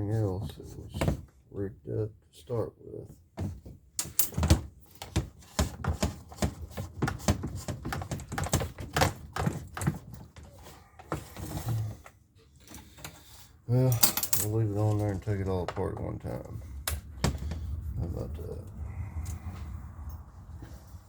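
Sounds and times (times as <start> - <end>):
hand tools clicking on plastic: 4.0 - 11.4.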